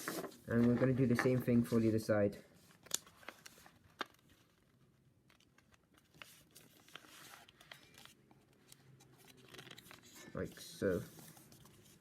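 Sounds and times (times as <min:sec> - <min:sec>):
paper being folded and creased: 0:02.6 - 0:12.0.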